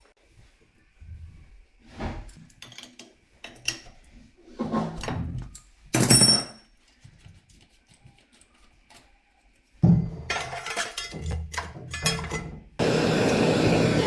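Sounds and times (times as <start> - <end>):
handling knocks and clatters: 9.8 - 12.8.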